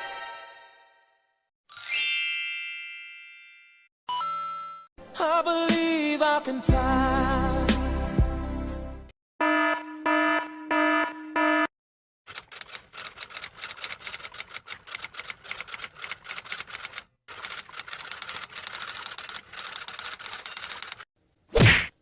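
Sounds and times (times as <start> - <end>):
typing on keys: 12.3 - 21.0.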